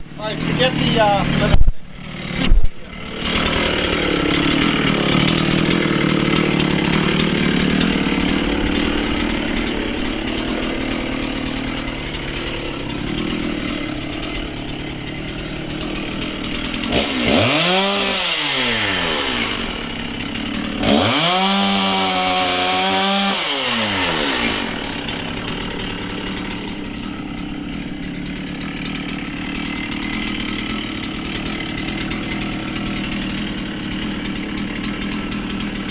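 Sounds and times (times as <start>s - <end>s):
chainsaw cutting tree: 0.0s - 35.9s.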